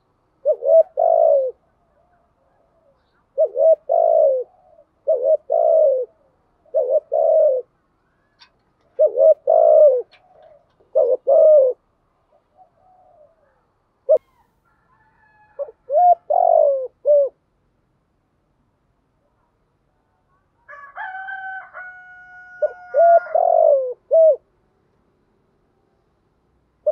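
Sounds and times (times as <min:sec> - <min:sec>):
dove cooing: 0:00.0 - 0:14.4, 0:15.4 - 0:17.4, 0:21.9 - 0:24.5.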